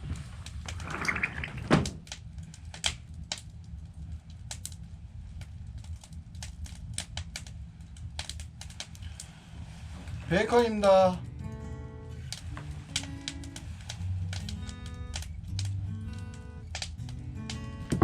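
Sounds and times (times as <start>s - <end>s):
low steady rumble: 0.0s - 18.0s
wood fire crackling: 0.0s - 18.0s.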